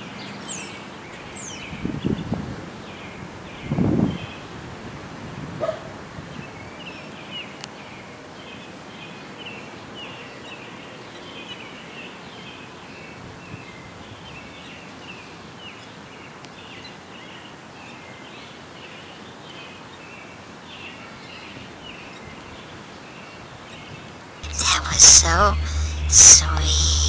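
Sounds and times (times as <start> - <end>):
outdoor background hiss: 10.6 - 27.0.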